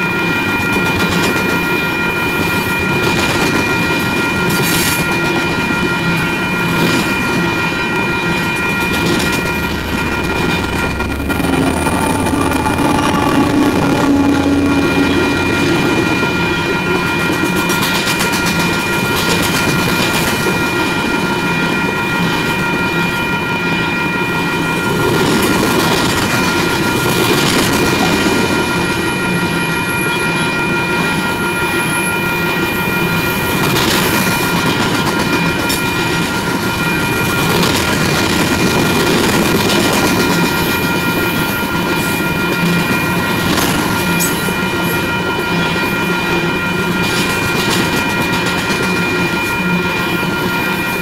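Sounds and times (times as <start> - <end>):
high ringing tone: 0.0 - 51.0
train wheels rumbling and clattering: 0.0 - 51.0.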